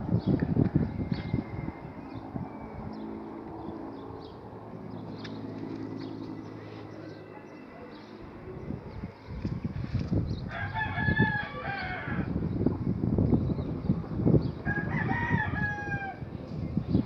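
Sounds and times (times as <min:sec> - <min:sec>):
rooster crowing: 0:10.5 - 0:12.4, 0:14.6 - 0:16.2.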